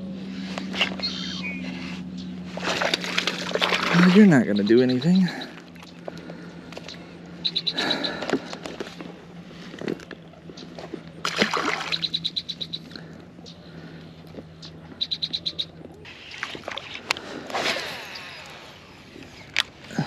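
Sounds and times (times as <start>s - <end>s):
water splashing: 2.5s - 4.7s, 11.2s - 12.2s, 16.1s - 18.5s.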